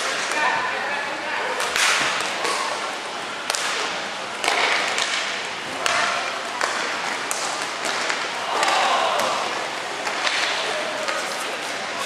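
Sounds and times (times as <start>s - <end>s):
sticks striking puck: 1.6s - 2.6s, 3.5s - 3.8s, 4.4s - 9.4s, 10.0s - 11.4s
skate blades scraping ice: 10.3s - 12.0s.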